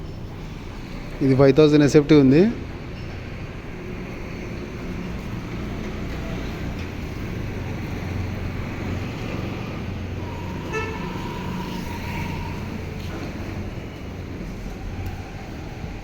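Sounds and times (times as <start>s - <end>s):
road traffic rumble: 0.0s - 16.0s
vehicle horn honking: 10.2s - 13.2s.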